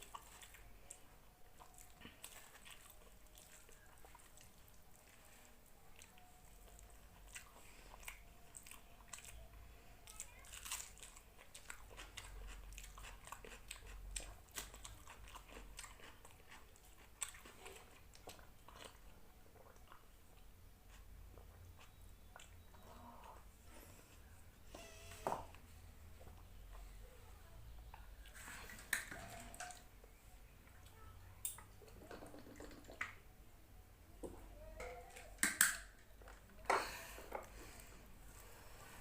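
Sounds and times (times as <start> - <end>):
person chewing food: 0.0 - 24.6.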